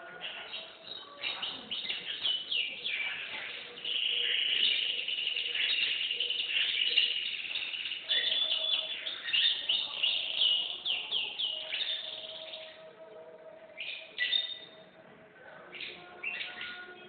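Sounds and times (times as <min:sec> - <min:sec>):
canary singing trills: 0:00.0 - 0:17.0.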